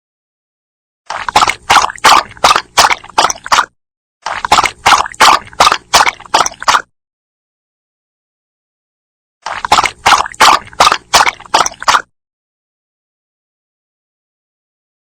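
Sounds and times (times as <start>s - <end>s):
dog lapping water: 1.1s - 6.9s, 9.4s - 12.1s.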